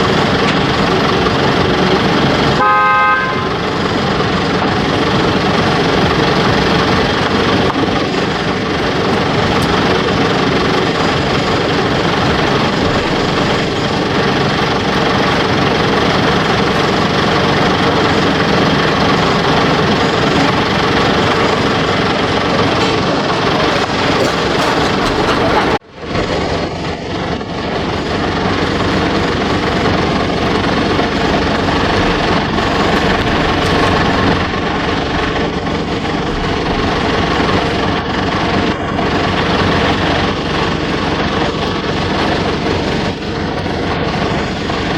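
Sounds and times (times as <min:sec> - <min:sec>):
motor traffic noise: 0:00.0 - 0:44.9
short vehicle horn toot: 0:02.6 - 0:03.9.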